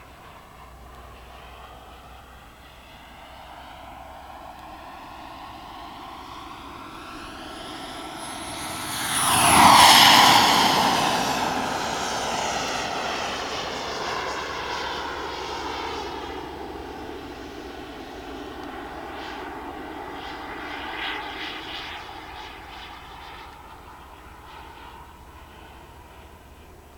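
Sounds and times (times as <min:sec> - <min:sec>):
model jet whistling whine: 0:00.0 - 0:26.9.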